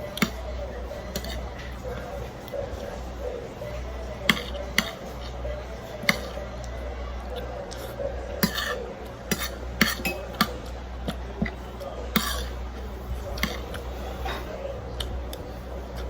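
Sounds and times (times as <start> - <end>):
low steady hum: 0.0 - 16.0
cutlery clinking on plates: 8.4 - 10.7.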